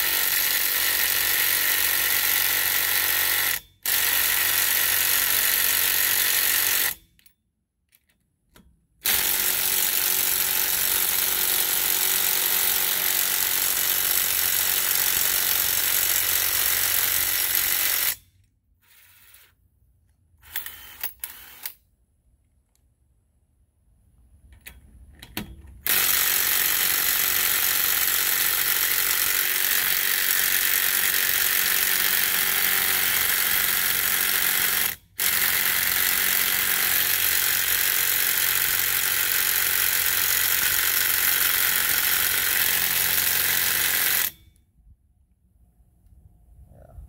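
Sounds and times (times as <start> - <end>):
impact driver hammering on nut: 25.3 - 44.4.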